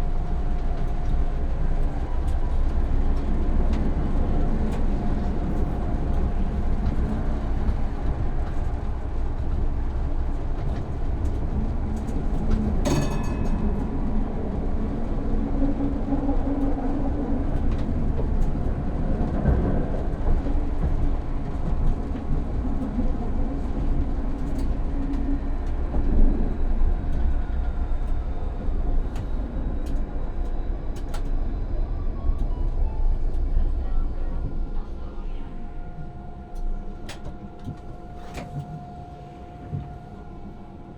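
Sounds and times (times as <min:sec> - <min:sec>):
tram wheels rumbling on rails: 0:00.0 - 0:40.9.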